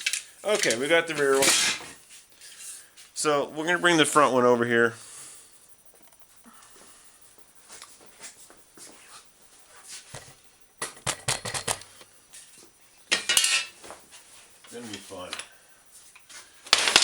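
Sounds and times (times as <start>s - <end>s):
metal parts clattering: 0.0s - 1.9s, 13.1s - 13.8s, 16.7s - 17.0s.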